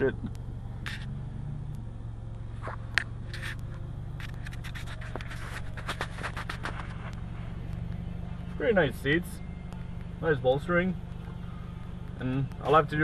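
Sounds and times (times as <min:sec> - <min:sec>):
car engine humming: 0:00.0 - 0:13.0
camera handling scrapes and clicks: 0:02.6 - 0:03.6, 0:04.2 - 0:07.1.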